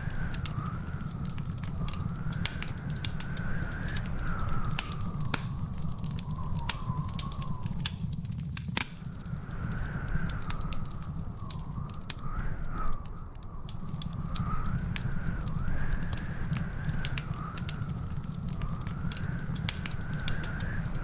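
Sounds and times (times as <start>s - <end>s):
wood fire crackling and popping: 0.0s - 21.0s
faint wavering whistle: 3.4s - 7.8s.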